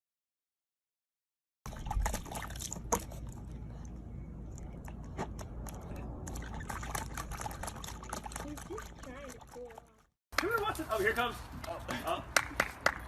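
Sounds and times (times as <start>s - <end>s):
water splashing and dripping: 1.7s - 10.9s.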